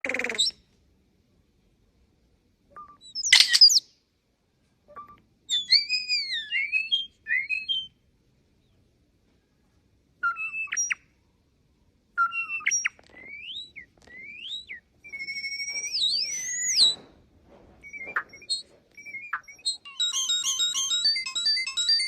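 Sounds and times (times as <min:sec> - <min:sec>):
bird whistling phrases: 0:00.0 - 0:00.6, 0:02.8 - 0:03.9, 0:04.9 - 0:08.0, 0:10.2 - 0:11.0, 0:12.2 - 0:17.0, 0:17.8 - 0:20.0
electronic-sounding chirps: 0:12.2 - 0:17.0, 0:17.9 - 0:22.0.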